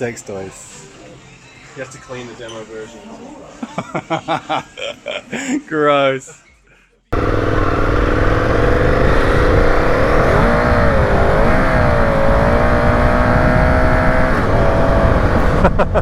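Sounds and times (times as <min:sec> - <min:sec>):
motorcycle engine pulling away: 0:07.2 - 0:16.0.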